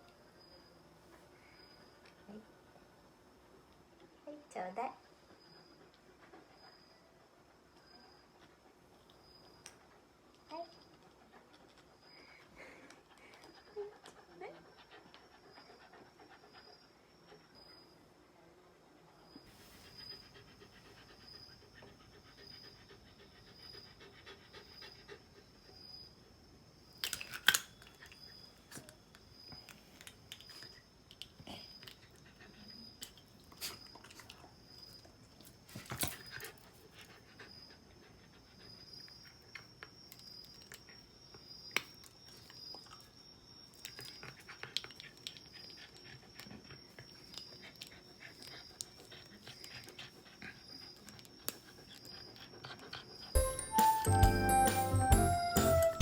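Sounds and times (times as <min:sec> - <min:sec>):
dog panting softly: 0:04.8 - 0:26.4, 0:30.5 - 0:39.9, 0:43.8 - 0:53.4.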